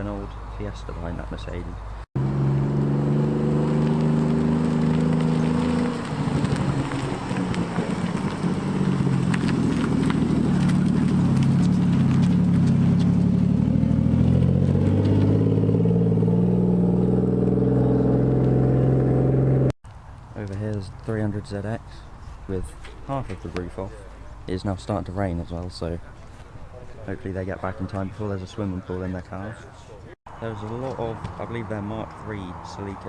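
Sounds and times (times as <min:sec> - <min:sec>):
car engine running: 0:02.2 - 0:19.7.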